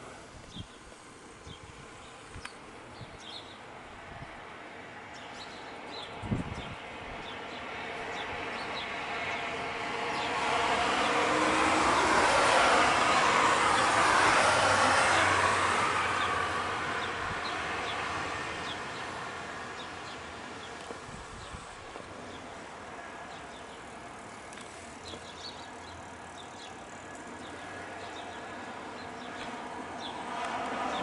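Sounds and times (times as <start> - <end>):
passing vehicle whoosh: 9.4 - 18.7.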